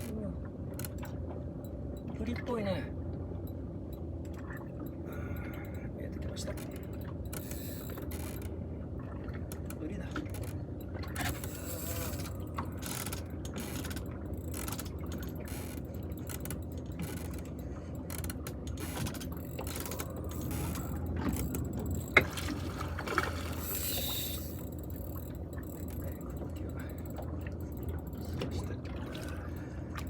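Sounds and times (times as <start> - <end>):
fishing reel gears clicking: 6.6 - 8.5, 11.2 - 22.4, 23.4 - 28.3.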